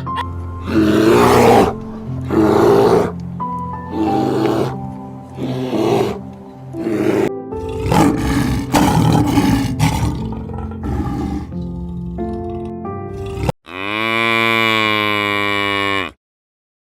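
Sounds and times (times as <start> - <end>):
background music with sustained notes: 0.0 - 13.5
big cat roaring: 0.6 - 3.2, 3.9 - 4.8, 5.4 - 6.2, 6.8 - 16.1.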